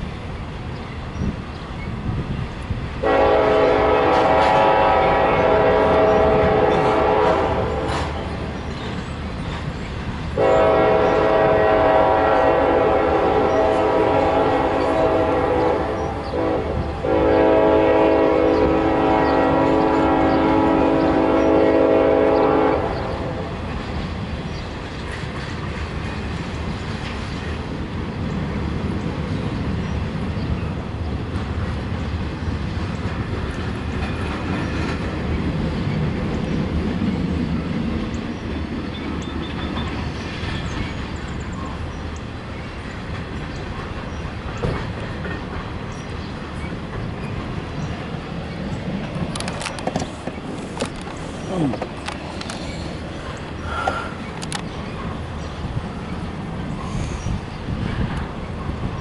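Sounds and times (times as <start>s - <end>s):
train cars rumbling on rails: 0.0s - 59.0s
train horn blasts: 3.0s - 8.4s, 10.4s - 23.6s.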